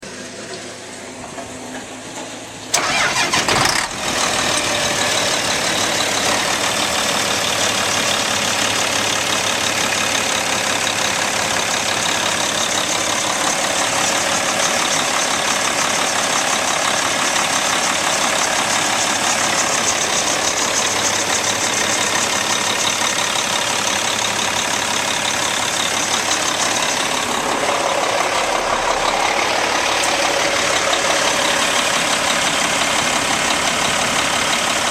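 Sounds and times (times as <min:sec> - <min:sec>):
diesel truck engine starting and idling: 0:00.0 - 0:34.9.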